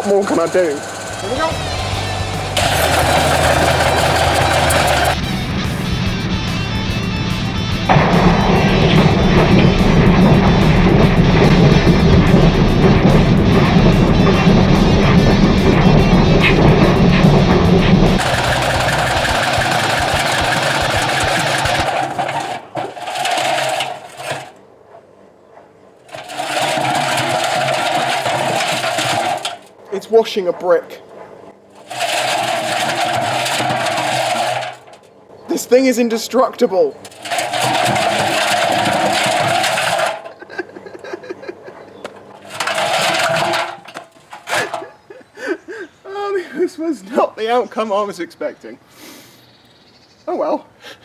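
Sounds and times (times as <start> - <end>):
washing machine spinning with whine: 0.0 - 5.1
washing machine clattering rattle: 0.0 - 5.2, 8.0 - 24.6, 26.1 - 29.7, 31.8 - 35.1, 37.0 - 40.6, 42.2 - 45.0
deep rumble: 0.8 - 22.0.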